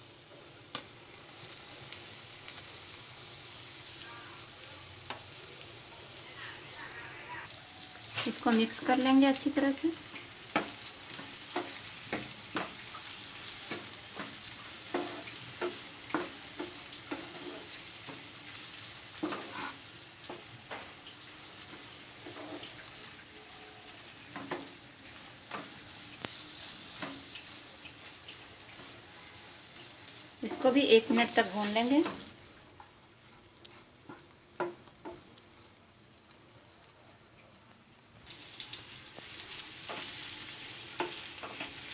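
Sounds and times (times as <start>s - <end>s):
food sizzling in a pan: 0.0s - 41.9s
spatula scraping a pan: 10.5s - 21.0s, 21.6s - 23.1s.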